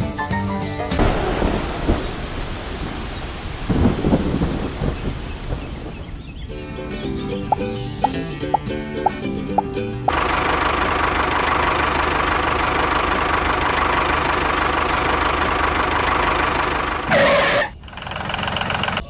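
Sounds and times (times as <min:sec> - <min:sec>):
small engine chugging: 0:08.5 - 0:19.0.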